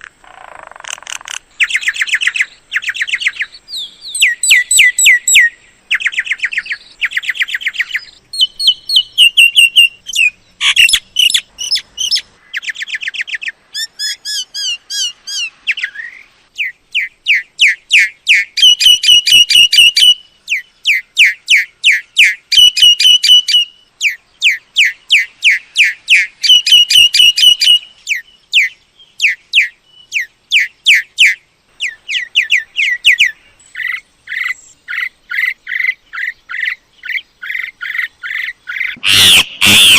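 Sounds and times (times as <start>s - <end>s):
myna calling: 32.1s - 39.9s.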